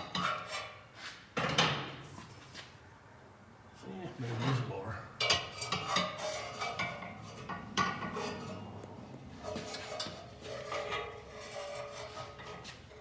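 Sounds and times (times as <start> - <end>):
metal clinking and scraping: 5.2 - 8.7, 9.4 - 13.0.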